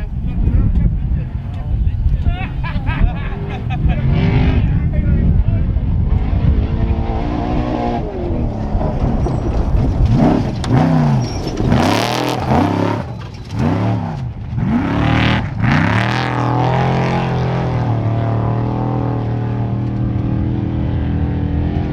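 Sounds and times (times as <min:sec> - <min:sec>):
truck engine revving: 0:00.0 - 0:21.9.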